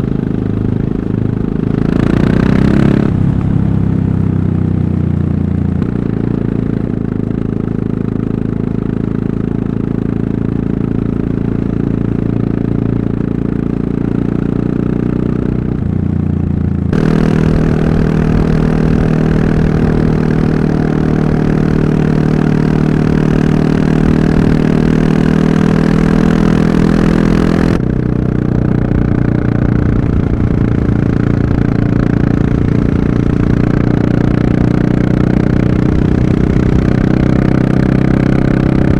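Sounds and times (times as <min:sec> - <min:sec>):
motorcycle engine running: 0:00.0 - 0:38.9
rushing wind noise: 0:17.0 - 0:27.9.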